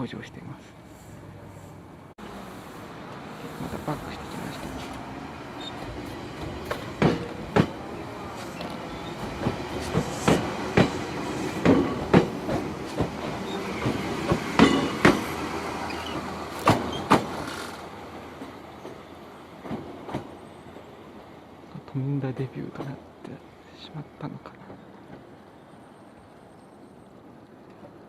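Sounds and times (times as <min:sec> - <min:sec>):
train rumble: 0:00.4 - 0:28.0
train wheels clacking on rail joints: 0:03.5 - 0:19.0.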